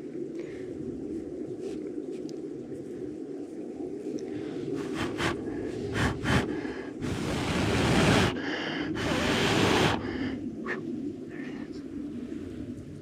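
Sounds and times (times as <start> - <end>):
person blowing on ember: 4.8 - 10.2.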